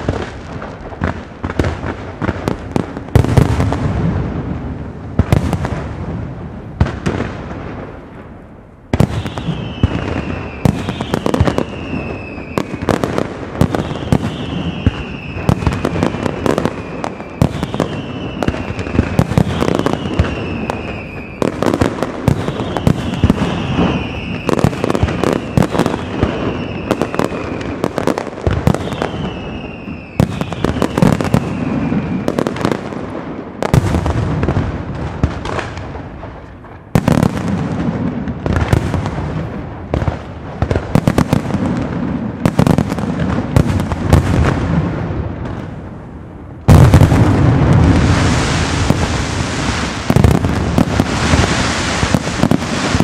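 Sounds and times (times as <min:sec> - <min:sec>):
firework bangs and crackle: 0:00.0 - 0:53.0
whistling firework shells: 0:08.9 - 0:32.9.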